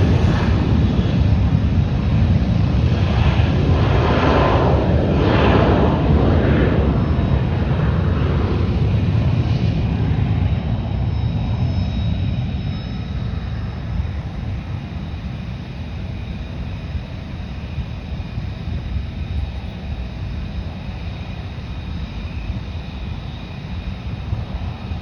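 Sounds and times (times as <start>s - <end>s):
aircraft engines rumbling: 0.0s - 25.0s
faint high whine: 11.1s - 25.0s.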